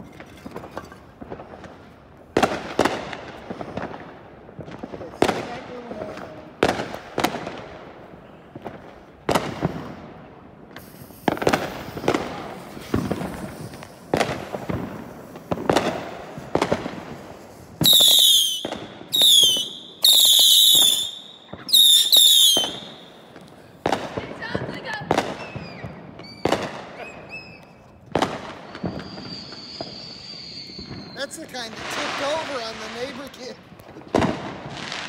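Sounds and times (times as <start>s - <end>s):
firework bangs: 0.0s - 35.0s
shrill firework whistles: 10.8s - 14.0s, 17.8s - 23.3s, 25.2s - 32.6s.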